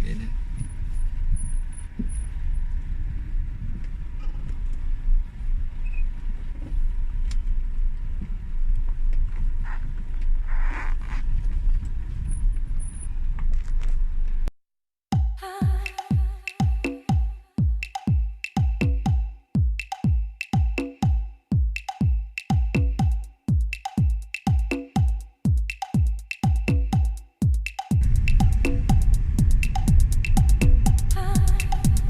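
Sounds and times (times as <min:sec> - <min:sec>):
car engine and road rumble: 0:00.0 - 0:14.5, 0:28.0 - 0:32.0.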